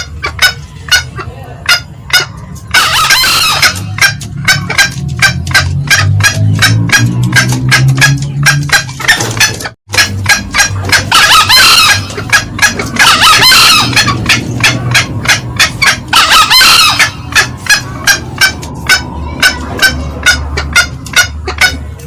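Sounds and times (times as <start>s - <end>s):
high-pitched bird crows: 0.0s - 21.8s
bird cackling calls: 0.0s - 22.0s.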